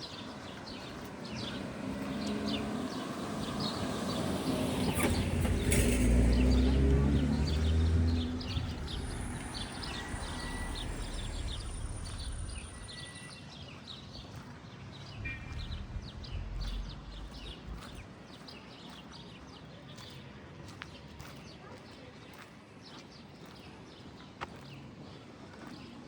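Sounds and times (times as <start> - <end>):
small birds chirping: 0.0 - 13.5, 15.0 - 19.0
passing vehicle rumble: 0.5 - 13.4, 15.0 - 18.2.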